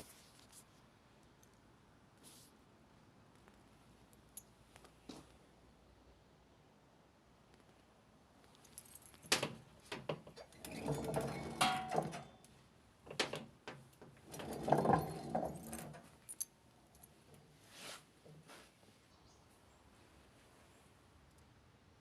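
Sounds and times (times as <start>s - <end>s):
metal scraping and rattling: 10.4s - 12.4s, 13.1s - 16.2s
metal tools clicking and rattling: 10.4s - 12.5s, 13.1s - 16.5s.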